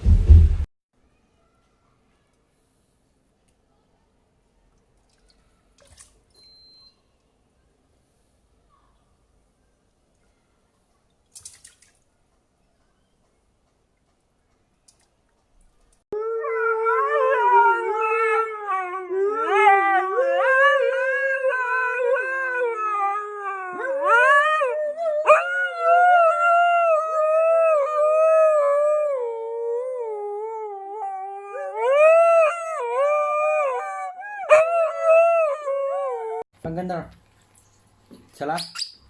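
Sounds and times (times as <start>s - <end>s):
dog howling: 16.2s - 36.4s.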